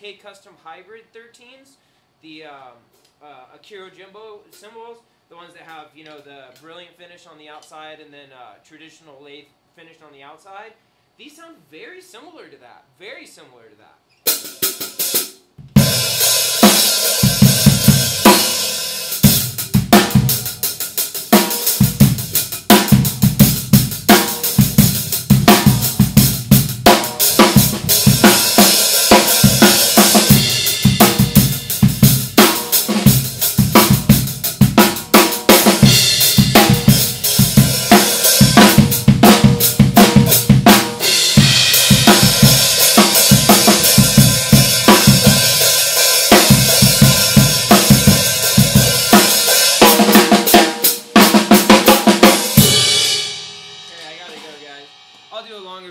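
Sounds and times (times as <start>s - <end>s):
snare drum: 14.3s - 20.4s, 21.2s - 54.9s
crisp high-pitched hi-hats: 14.3s - 51.1s, 52.0s - 55.9s.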